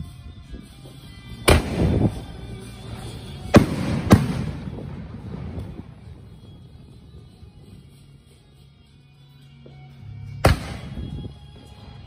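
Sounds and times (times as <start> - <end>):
music: 0.0 - 12.0
fireworks bangs: 3.5 - 6.2.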